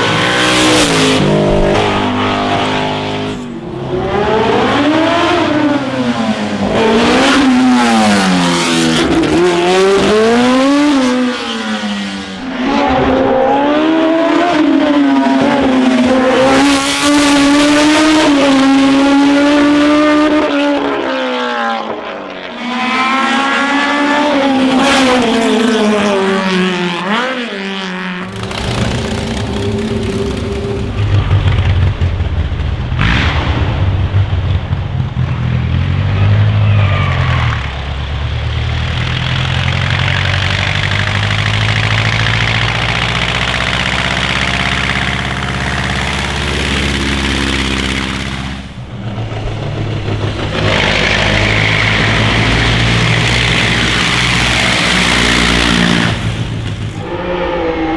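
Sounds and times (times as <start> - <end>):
deep rough car engine rumble: 0.0 - 11.3, 28.2 - 57.9
racing car engine at high revs: 0.0 - 57.9.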